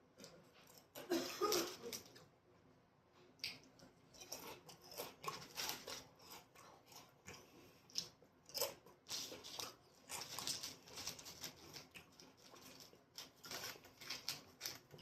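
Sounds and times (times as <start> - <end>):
person chewing and biting food: 3.4 - 15.0.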